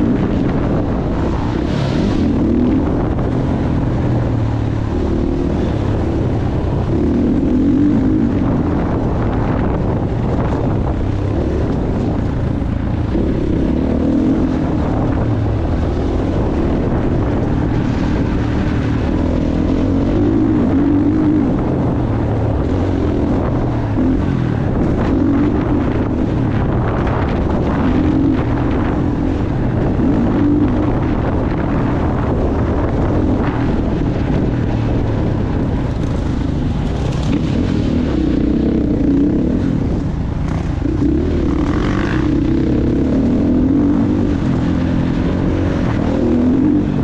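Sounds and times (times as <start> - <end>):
motocross bike engine revving: 0.0 - 34.7, 35.5 - 47.0
wind buffeting microphone: 0.0 - 47.0.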